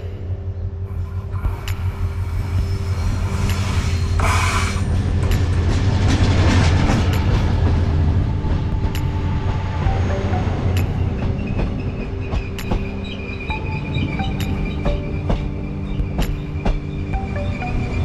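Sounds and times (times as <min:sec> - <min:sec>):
diesel locomotive engine drone: 0:00.0 - 0:18.0
higher-pitched noise burst: 0:00.9 - 0:05.1
train wheel clicks: 0:01.0 - 0:08.0, 0:10.7 - 0:13.2.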